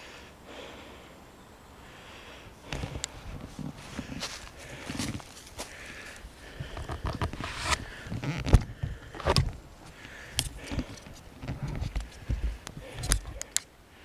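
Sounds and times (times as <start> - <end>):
footsteps crunching on forest floor: 2.3 - 13.7
twigs snapping: 2.6 - 13.8.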